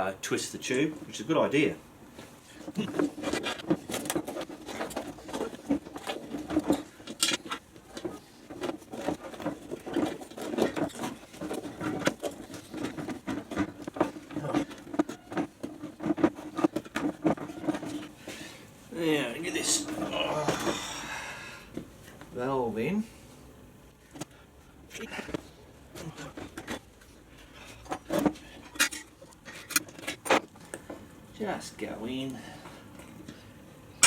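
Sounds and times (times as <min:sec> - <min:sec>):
rubber rubbing and scraping: 0:02.5 - 0:18.2.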